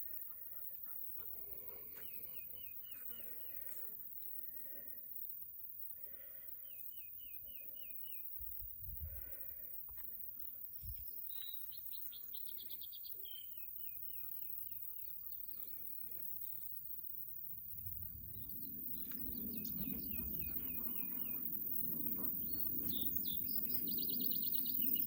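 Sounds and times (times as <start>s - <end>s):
birds singing: 1.6s - 3.7s, 11.2s - 15.8s, 18.3s - 25.0s.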